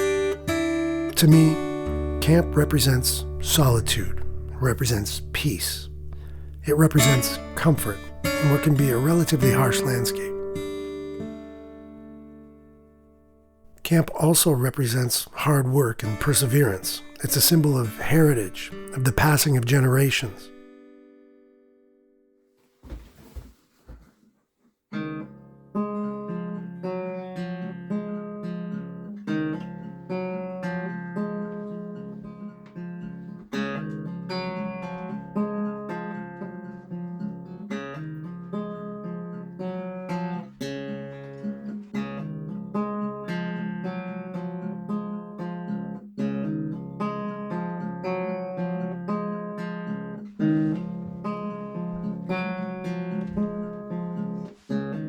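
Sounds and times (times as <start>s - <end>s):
acoustic guitar plucked and strummed: 0.0s - 22.3s, 24.9s - 55.0s.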